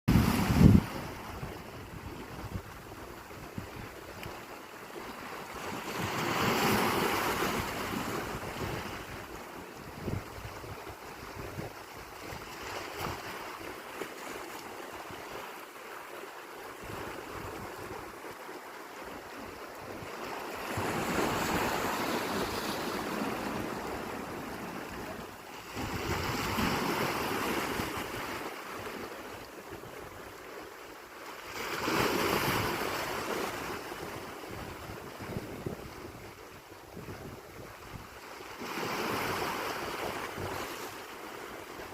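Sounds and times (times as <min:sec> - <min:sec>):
wind buffeting microphone: 0:00.1 - 0:04.1, 0:06.9 - 0:13.4, 0:33.6 - 0:38.2
sea waves breaking: 0:00.1 - 0:36.1, 0:37.9 - 0:41.9.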